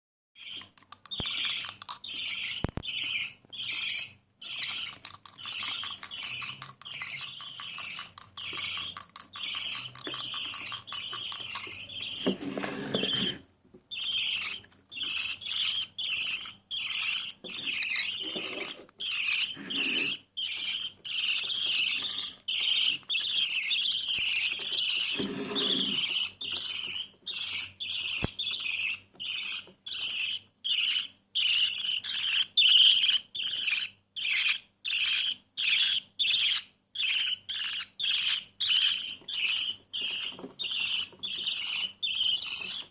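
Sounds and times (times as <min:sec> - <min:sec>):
budgie raspy begging chirps: 0:19.0 - 0:26.5.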